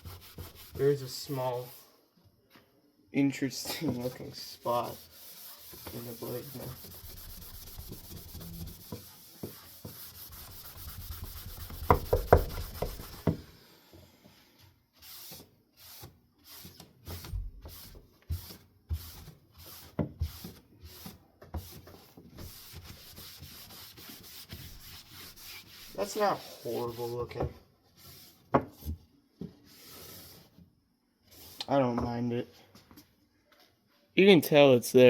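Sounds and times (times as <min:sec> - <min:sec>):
rubbing on wooden fan blade: 0:00.0 - 0:01.8, 0:04.0 - 0:13.3, 0:22.4 - 0:27.4.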